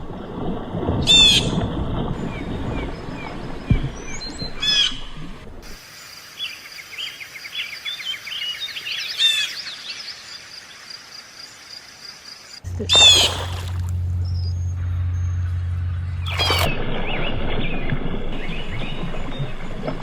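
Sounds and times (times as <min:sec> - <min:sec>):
birds chirping: 0:02.2 - 0:05.4, 0:11.6 - 0:20.0
low steady hum: 0:12.6 - 0:20.0
descending bird calls: 0:12.8 - 0:13.5.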